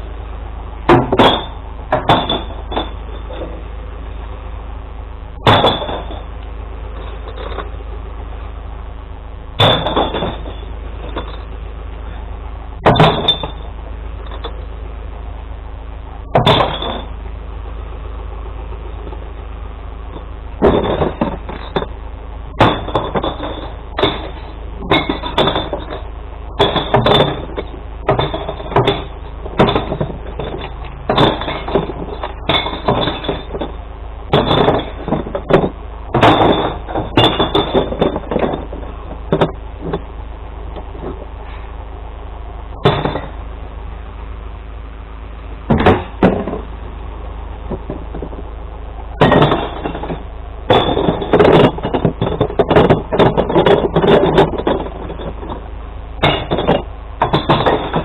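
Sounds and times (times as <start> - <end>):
truck engine hum: 0.0 - 58.0
glass bottles smashing: 0.9 - 3.5, 5.4 - 6.3, 9.6 - 11.5, 12.8 - 14.5, 16.4 - 17.1, 20.6 - 21.9, 22.6 - 26.0, 26.6 - 40.0, 42.8 - 43.4, 49.2 - 55.6, 56.2 - 58.0.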